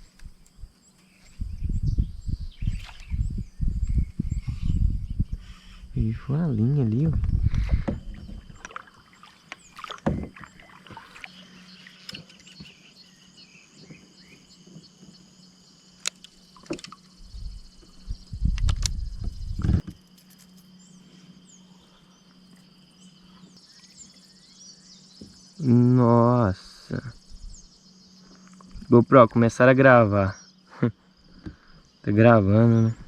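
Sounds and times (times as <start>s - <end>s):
low rumble of movement: 0.0s - 30.5s
faint steady hum: 0.0s - 33.0s
steady high buzz: 10.6s - 33.0s.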